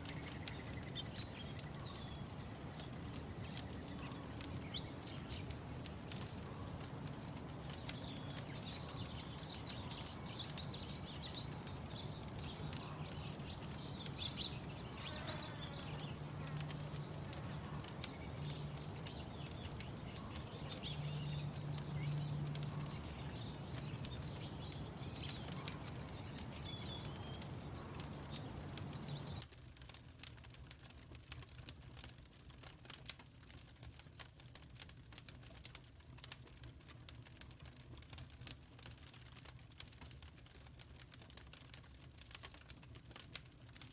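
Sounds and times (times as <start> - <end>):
small birds chirping: 0.0 - 29.5
fire crackling: 0.0 - 43.9.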